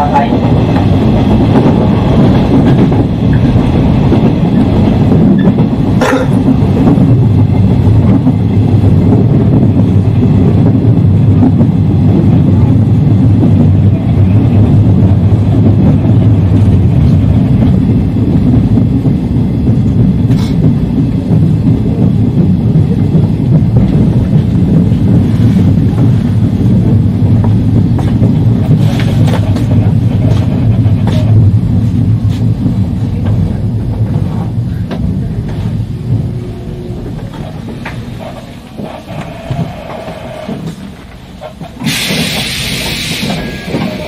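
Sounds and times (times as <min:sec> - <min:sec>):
train wheels rumbling on rail: 0:00.0 - 0:44.0
sharp track clicks: 0:18.6 - 0:36.4, 0:37.0 - 0:44.0.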